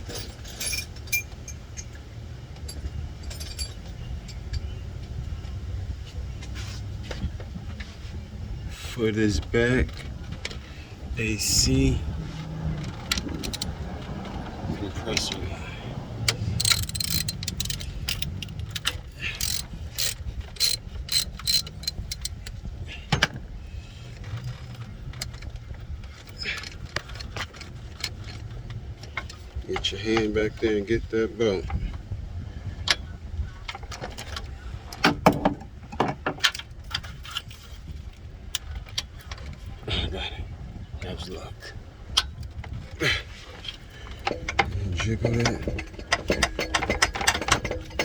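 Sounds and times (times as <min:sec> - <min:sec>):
metal tools clinking on engine parts: 0:00.0 - 0:05.2, 0:08.7 - 0:23.4, 0:41.0 - 0:48.0
steady low rumble: 0:00.0 - 0:35.0
metallic clinks of socket wrench: 0:16.3 - 0:22.5.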